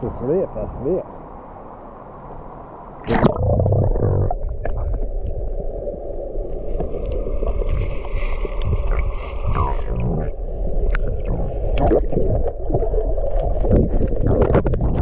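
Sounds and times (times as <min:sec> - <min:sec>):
underwater water gurgle and bubbles: 0:03.0 - 0:15.0.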